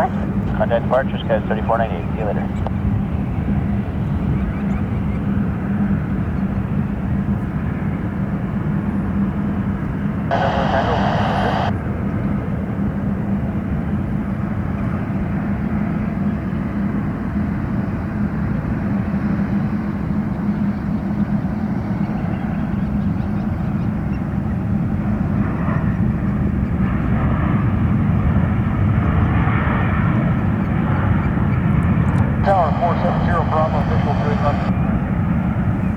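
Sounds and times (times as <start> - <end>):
jet engines running: 0.0 - 2.6, 10.3 - 11.7, 31.9 - 34.8.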